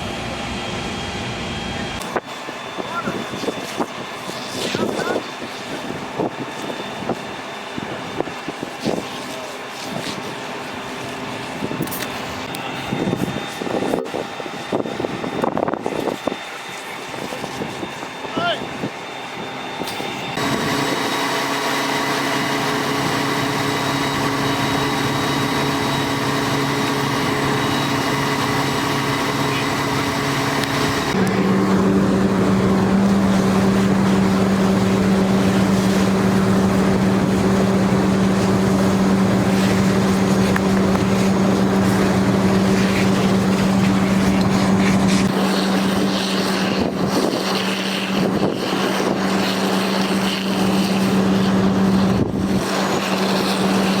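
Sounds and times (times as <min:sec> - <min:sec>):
large engine running: 0:00.0 - 0:03.0, 0:18.9 - 0:54.0.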